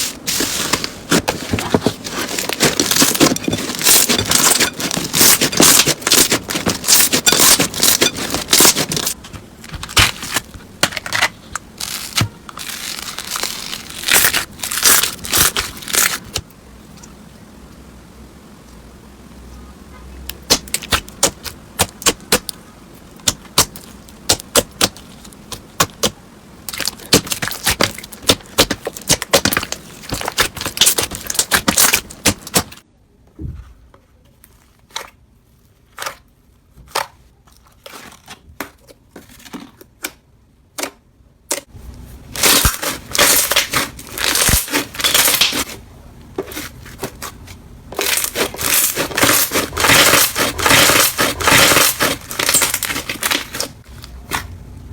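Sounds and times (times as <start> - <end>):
slime squeezed by hand crackling: 48.0 - 54.5.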